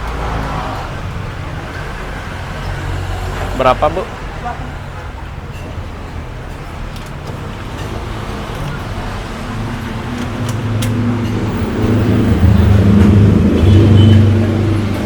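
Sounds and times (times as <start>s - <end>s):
road traffic: 0.0s - 15.0s
vehicle engine hum approaching: 7.3s - 15.0s.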